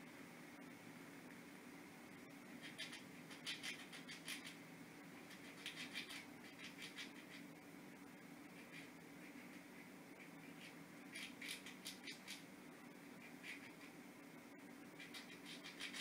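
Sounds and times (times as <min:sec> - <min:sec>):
faint steady hum: 0:00.0 - 0:16.0
squirrel gnawing nut shell: 0:02.5 - 0:04.6, 0:05.2 - 0:07.6, 0:08.5 - 0:12.5, 0:13.2 - 0:14.0, 0:14.7 - 0:16.0.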